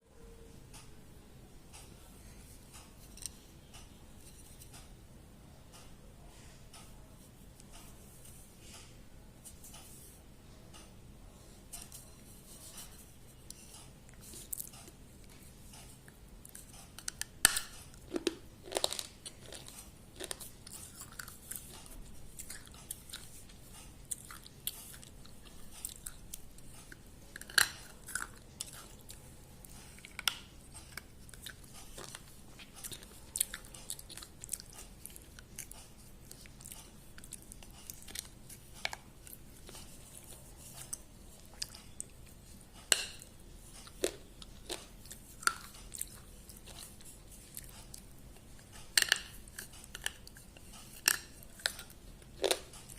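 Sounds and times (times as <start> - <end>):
person chewing and biting food: 13.6 - 52.9.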